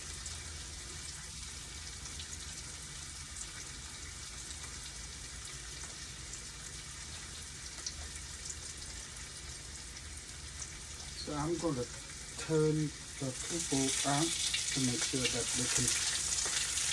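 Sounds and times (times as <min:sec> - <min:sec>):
tofu sizzling in oil: 0:00.0 - 0:16.9
oil crackling pops: 0:13.4 - 0:16.9.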